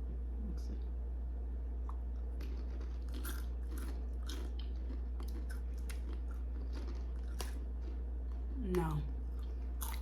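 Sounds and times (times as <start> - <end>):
person chewing crunchy snacks: 1.8 - 10.0.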